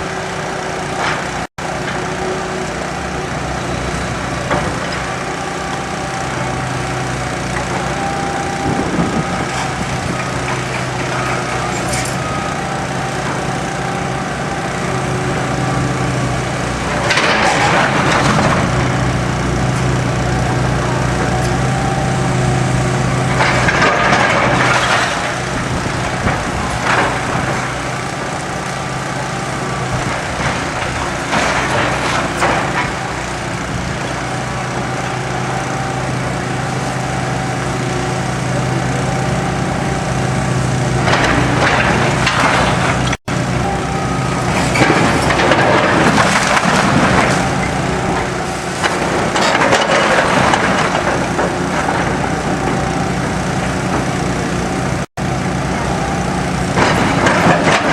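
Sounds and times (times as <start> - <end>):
heavy machine engine running: 0.0 - 57.9
wood cracking and debris crashing: 44.4 - 52.7, 56.8 - 57.9.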